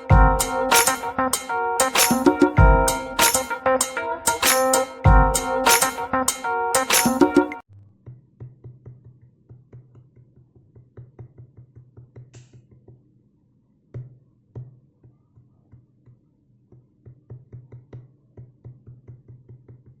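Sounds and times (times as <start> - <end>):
fingers tapping drum pads: 0.0 - 7.6
low drum thuds: 0.1 - 0.7, 2.6 - 3.2, 5.1 - 5.7.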